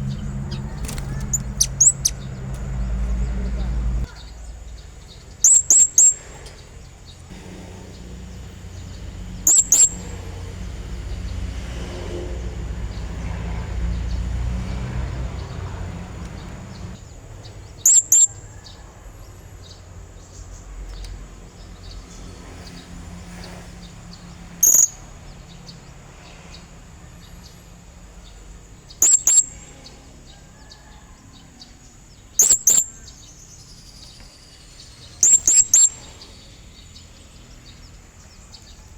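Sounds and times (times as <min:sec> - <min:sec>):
low rumble: 0:00.0 - 0:04.1
parrot giving shrill high calls: 0:00.9 - 0:02.2, 0:09.4 - 0:10.0, 0:29.0 - 0:29.6.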